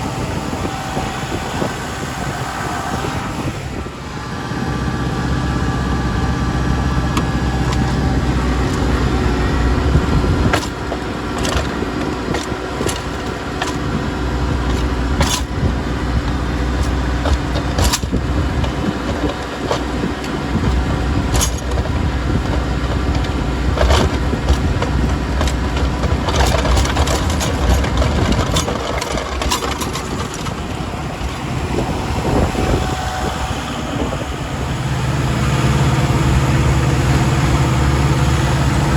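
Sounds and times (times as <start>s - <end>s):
tractor diesel engine running: 0.0s - 38.9s
knocks and rattles: 7.1s - 32.9s.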